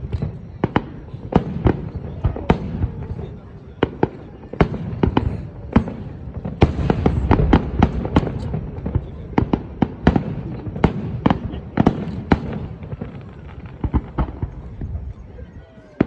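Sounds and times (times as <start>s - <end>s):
fireworks bangs: 0.0s - 16.0s
low rumble of echoing booms: 4.8s - 15.1s.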